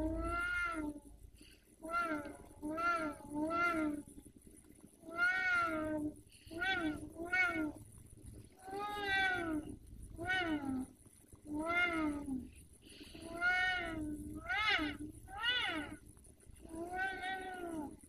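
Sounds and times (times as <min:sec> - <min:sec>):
cat meowing: 0:00.0 - 0:01.0, 0:01.8 - 0:04.0, 0:05.0 - 0:07.8, 0:08.6 - 0:10.9, 0:11.5 - 0:12.4, 0:13.2 - 0:16.0, 0:16.6 - 0:18.0.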